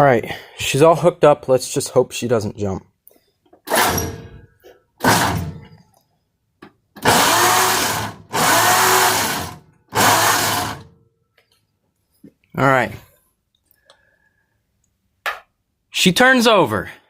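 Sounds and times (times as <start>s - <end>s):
starter motor cranking engine: 5.0s - 5.4s, 7.0s - 10.9s.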